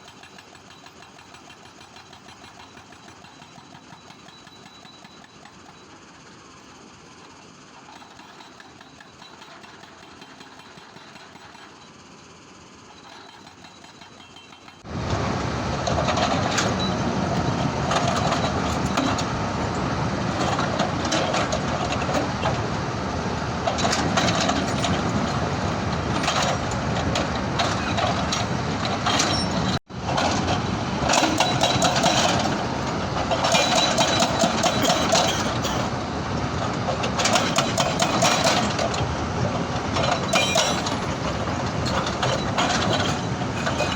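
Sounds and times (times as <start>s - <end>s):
stone-crushing machinery running: 13.0s - 43.9s.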